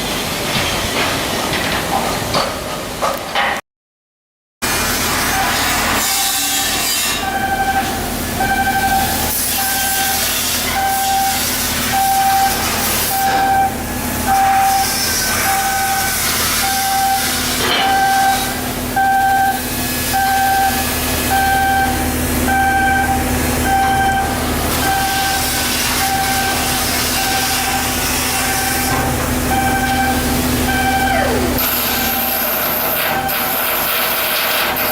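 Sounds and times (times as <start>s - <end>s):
machinery noise: 4.7s - 34.9s
electronic warning beeps: 7.2s - 33.5s.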